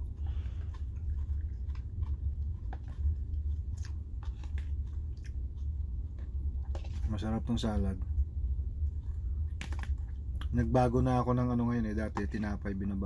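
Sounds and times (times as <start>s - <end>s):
person chewing crunchy salad: 0.0s - 7.3s
steady low hum: 0.0s - 13.0s.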